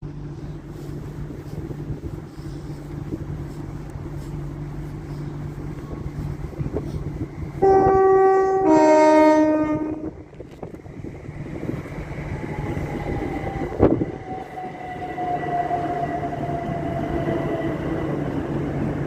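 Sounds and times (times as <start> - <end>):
electric train rumble: 0.0 - 19.0
two-tone train horn: 7.6 - 10.2.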